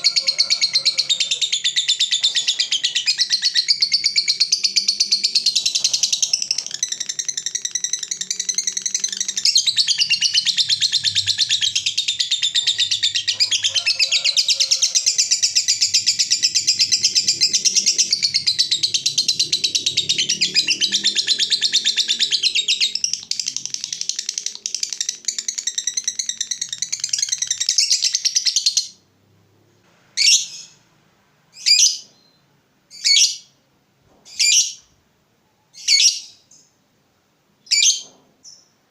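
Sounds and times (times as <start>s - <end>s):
lovebird high-pitched chatter: 0.0s - 29.0s, 35.8s - 36.6s.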